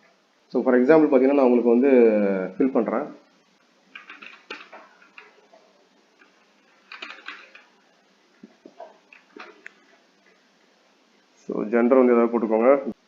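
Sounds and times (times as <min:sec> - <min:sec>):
computer keyboard typing: 0:03.9 - 0:05.4, 0:06.2 - 0:07.7.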